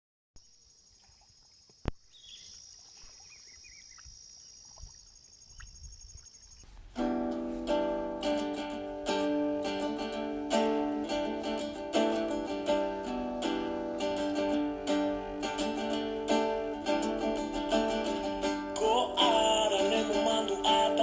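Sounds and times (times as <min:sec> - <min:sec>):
plucked-string music: 0:06.8 - 0:21.0.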